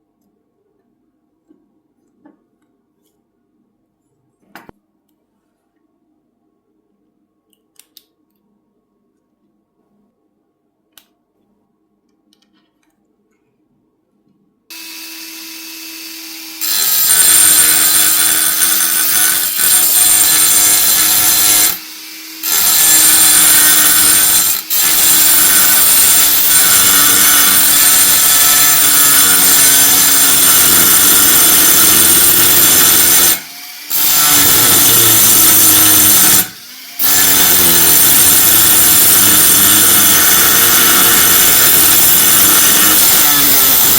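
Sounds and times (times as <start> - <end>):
power tool whine: 14.7 - 43.9.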